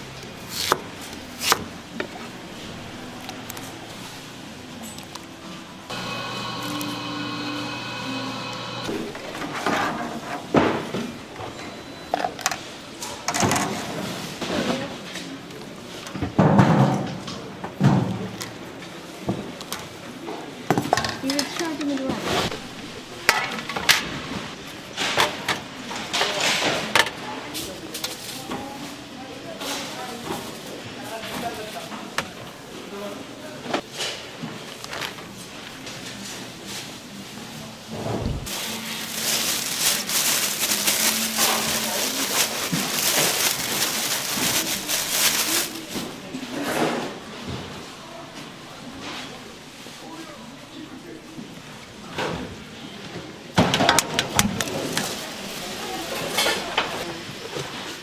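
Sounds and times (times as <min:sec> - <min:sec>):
utensils and dishes clinking: 0:38.5 - 0:47.0, 0:56.0 - 0:57.2.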